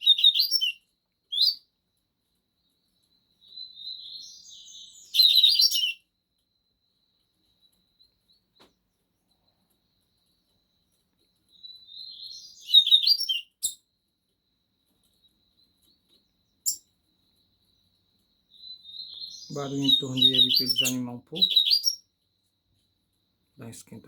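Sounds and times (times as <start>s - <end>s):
bird singing high twittering: 3.4s - 6.0s, 11.5s - 13.8s, 18.5s - 22.1s.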